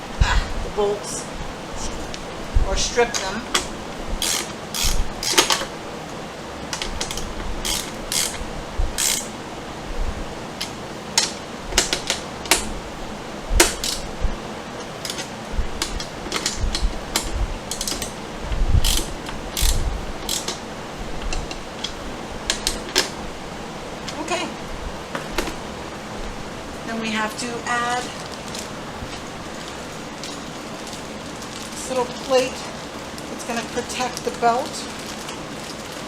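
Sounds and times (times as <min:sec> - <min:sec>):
ratcheting tool clicks: 0:03.6 - 0:05.7, 0:06.7 - 0:08.4, 0:09.0 - 0:09.3, 0:13.6 - 0:14.1, 0:15.0 - 0:18.2, 0:18.8 - 0:20.6.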